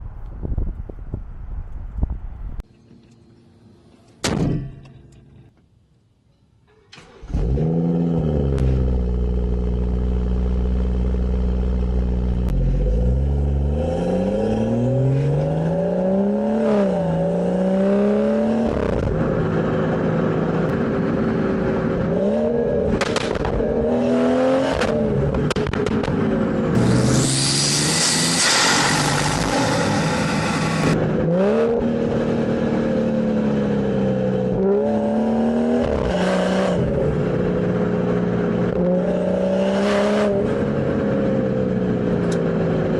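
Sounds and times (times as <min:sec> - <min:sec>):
car engine starting and revving: 0:06.9 - 0:42.9
exhaust cracks: 0:22.9 - 0:23.8, 0:24.7 - 0:31.3.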